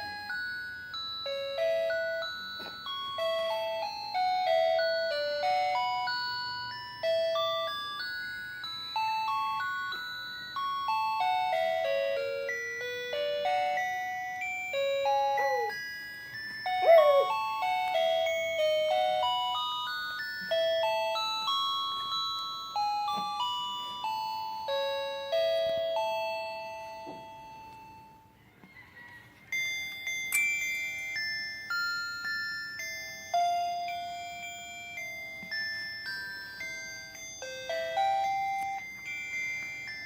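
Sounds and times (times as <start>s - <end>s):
musical toy chiming tune: 0.0s - 28.4s, 29.2s - 40.0s
baby cooing: 15.1s - 15.8s, 16.8s - 17.4s.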